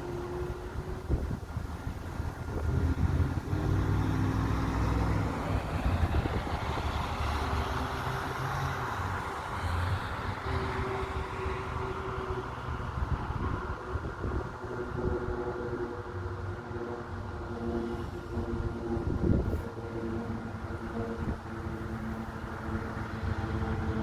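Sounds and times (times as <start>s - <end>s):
engine low rumble: 0.0s - 24.0s.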